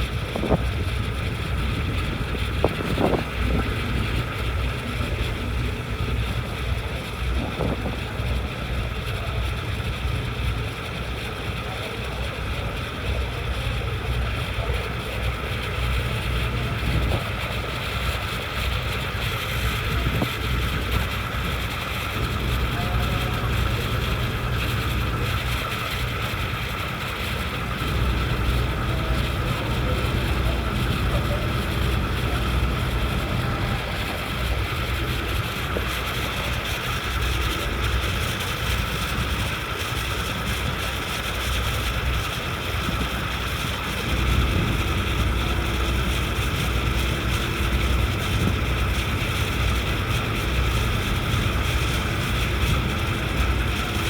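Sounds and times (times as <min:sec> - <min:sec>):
wind on microphone: 0:00.0 - 0:08.5
ferry engine drone: 0:00.0 - 0:54.0
mechanical hum: 0:19.6 - 0:40.8, 0:41.4 - 0:54.0.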